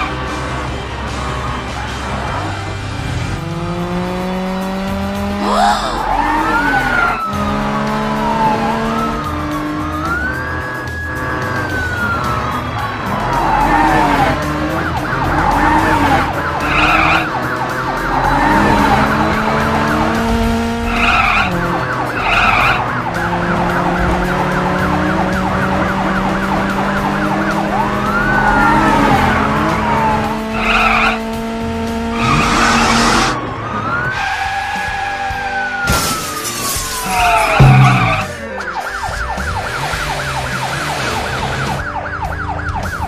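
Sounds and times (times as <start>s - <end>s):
background music: 0.0s - 43.0s
cartoon engine hums: 3.4s - 10.6s
sliding pitch glides: 31.9s - 33.5s, 36.5s - 39.0s.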